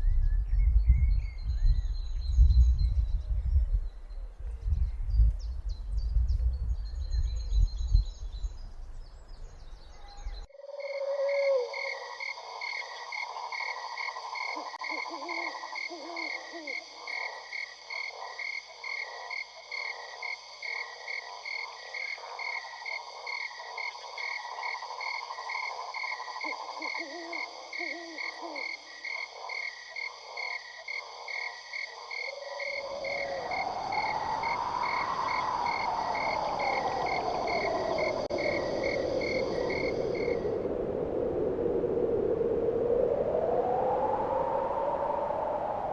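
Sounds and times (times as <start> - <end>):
frogs croaking: 10.0 - 42.0.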